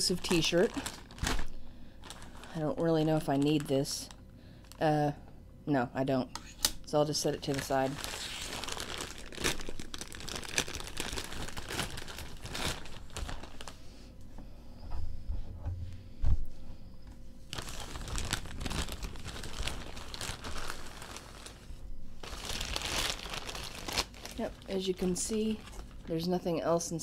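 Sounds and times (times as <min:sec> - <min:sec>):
mailing bag crinkling: 0:00.0 - 0:04.8, 0:07.1 - 0:13.8, 0:17.5 - 0:26.4.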